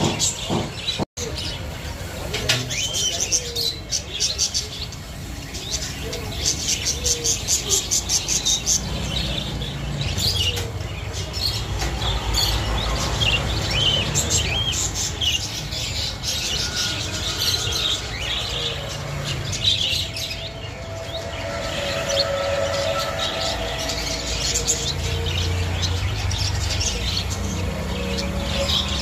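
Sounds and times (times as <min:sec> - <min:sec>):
sparrows chirping: 0:00.0 - 0:29.0
pulsed bird notes: 0:15.9 - 0:29.0.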